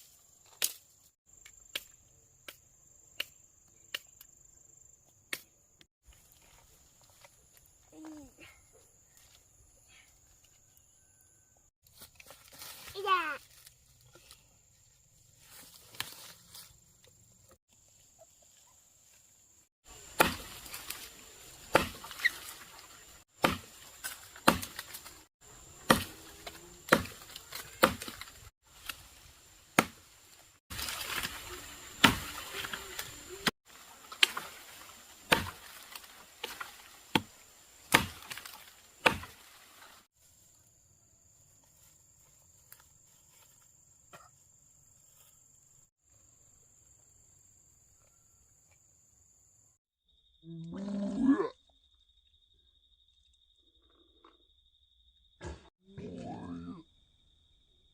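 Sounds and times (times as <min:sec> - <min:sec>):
blade chopping wood: 0:20.0 - 0:22.6, 0:23.4 - 0:25.2, 0:25.8 - 0:29.1, 0:29.7 - 0:30.1, 0:30.7 - 0:39.5.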